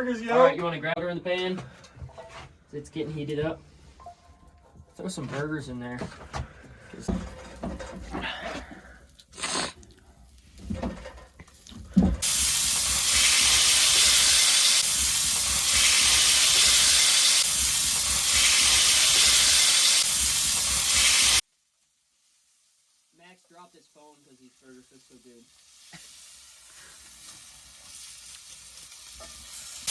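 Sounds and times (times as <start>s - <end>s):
patties sizzling in a pan: 11.5s - 29.9s.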